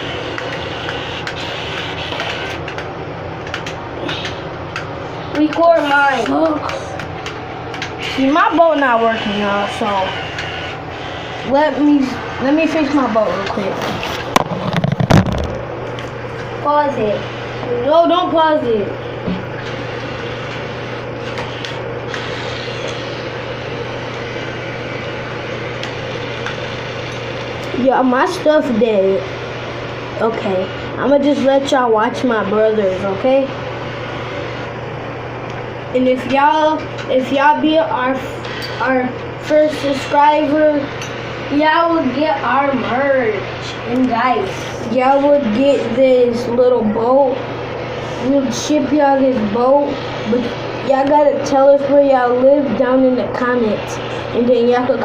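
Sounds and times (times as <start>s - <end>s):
small motor whirring: 0.0s - 2.8s, 7.8s - 12.9s, 19.6s - 27.5s
mechanical hum: 0.0s - 55.0s.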